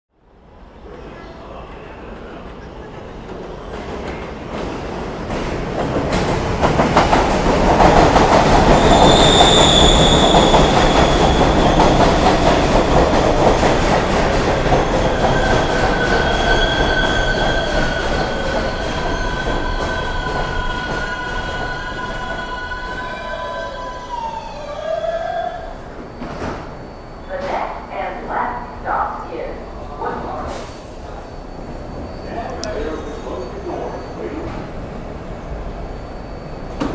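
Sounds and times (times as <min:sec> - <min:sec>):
subway wheels clacking on rail joints: 0:02.5 - 0:23.4
high wheel squeal: 0:08.6 - 0:12.4, 0:14.8 - 0:27.3, 0:35.8 - 0:36.9.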